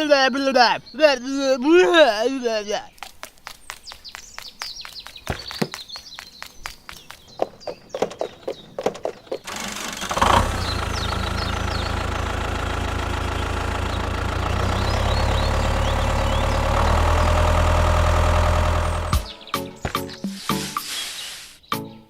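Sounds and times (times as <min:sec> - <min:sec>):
tractor engine running: 0:06.8 - 0:20.5
faint bird chirps: 0:19.2 - 0:22.0.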